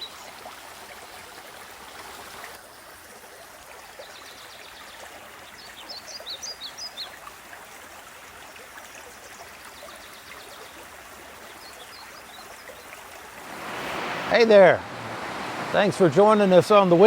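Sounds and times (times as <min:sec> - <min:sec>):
creek water rushing: 0:00.0 - 0:03.8, 0:07.2 - 0:17.0
songbird chirping: 0:11.4 - 0:17.0.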